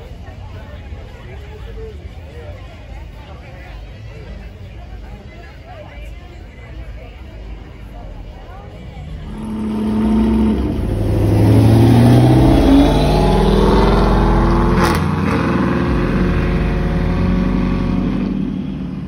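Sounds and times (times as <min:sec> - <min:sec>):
car engine revving accelerating: 0:09.1 - 0:19.0.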